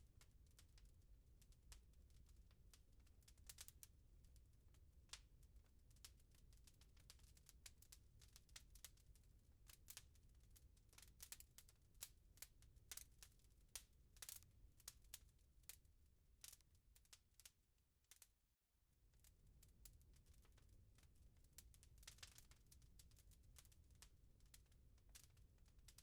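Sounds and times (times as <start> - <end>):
wood fire crackling: 3.0 - 9.0, 9.6 - 15.8, 19.2 - 26.0.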